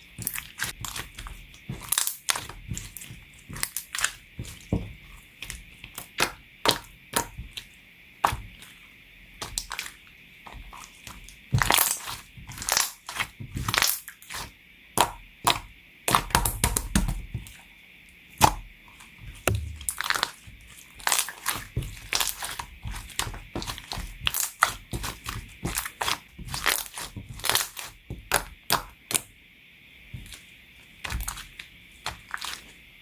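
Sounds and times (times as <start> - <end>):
slime crackling and popping: 0.2 - 4.8, 9.4 - 10.0, 10.6 - 17.1, 19.4 - 29.2, 31.0 - 32.7.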